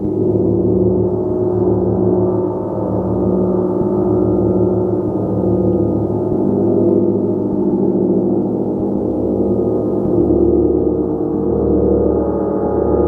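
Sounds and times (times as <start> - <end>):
gong played continuously: 0.0 - 13.0.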